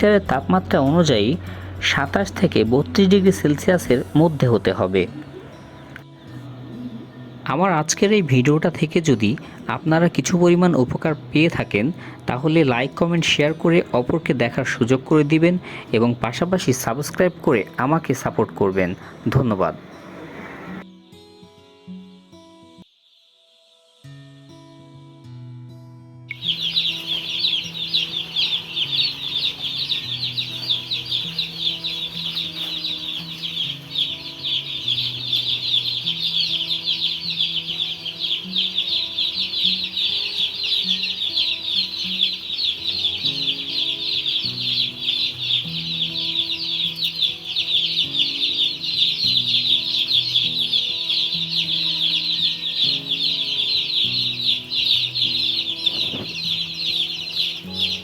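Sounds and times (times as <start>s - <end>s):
soft background music: 0.0s - 58.0s
chicks peeping: 26.3s - 58.0s.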